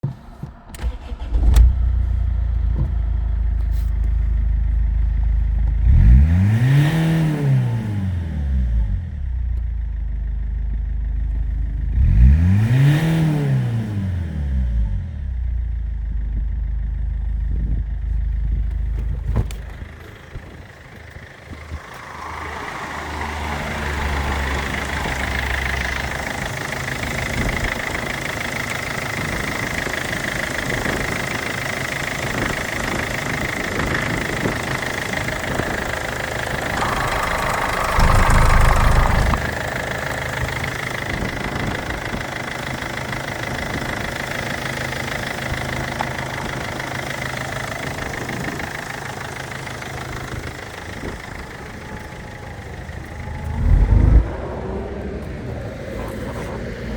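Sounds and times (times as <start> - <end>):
diesel engine idling: 15.7 - 56.9
high steady whine: 35.8 - 39.7.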